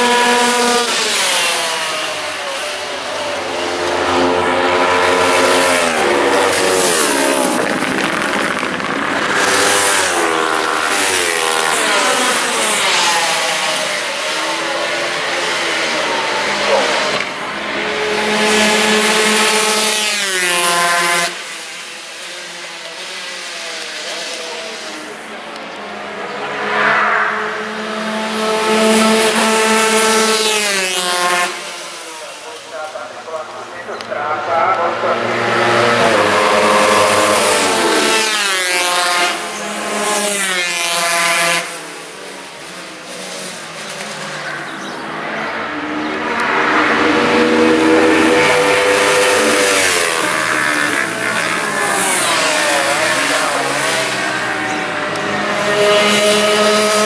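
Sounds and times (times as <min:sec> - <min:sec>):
racing motorcycles at full throttle: 0:00.0 - 0:57.0
distant motorcycle engine: 0:24.4 - 0:31.8, 0:43.3 - 0:57.0.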